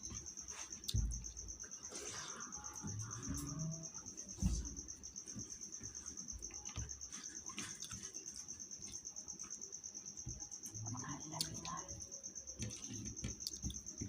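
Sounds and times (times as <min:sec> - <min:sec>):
cricket chirping: 0:00.0 - 0:14.0
low thuds: 0:02.8 - 0:05.0.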